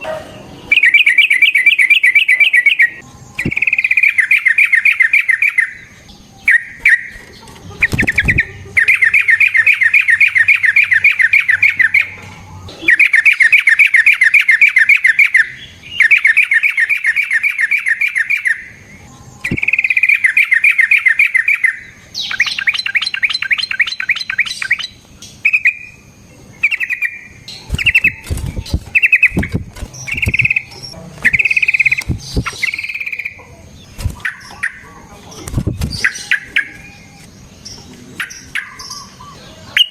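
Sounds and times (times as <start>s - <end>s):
bird singing trilled phrases: 0.0s - 39.9s.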